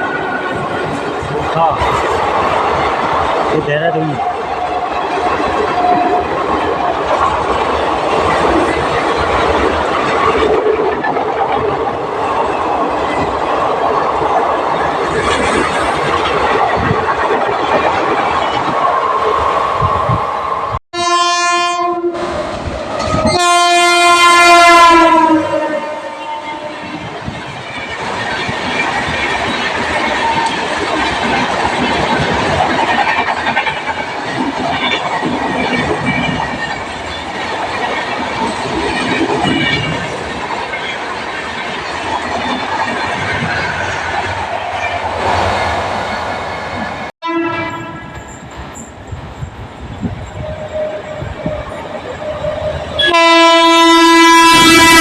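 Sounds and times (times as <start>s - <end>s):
train rumbling and clattering: 0.0s - 20.8s, 21.7s - 55.0s
locomotive horn blasts: 20.9s - 22.3s, 23.0s - 27.0s, 47.2s - 48.2s, 53.0s - 55.0s.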